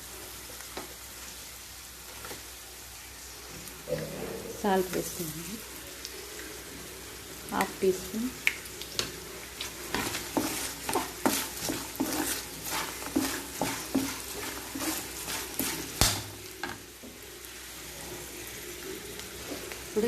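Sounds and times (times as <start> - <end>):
oil sizzling: 0.0 - 20.0
spoon scraping in pan: 9.6 - 16.8.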